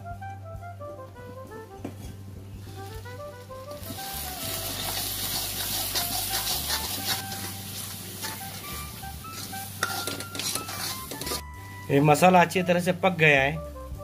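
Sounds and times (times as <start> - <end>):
background music: 0.0 - 14.0
spice paste sizzling in oil: 2.6 - 13.1
metal ladle scraping pan: 3.8 - 11.5.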